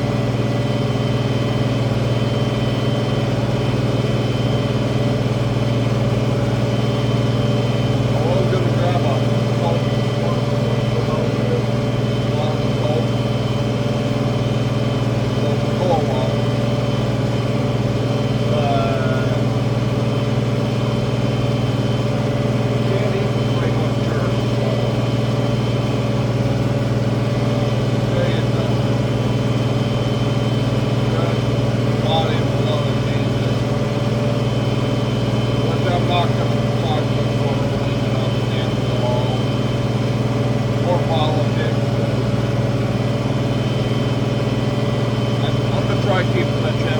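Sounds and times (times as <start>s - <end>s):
thin steady whine: 0.0s - 46.9s
tractor diesel engine under load: 0.0s - 46.9s.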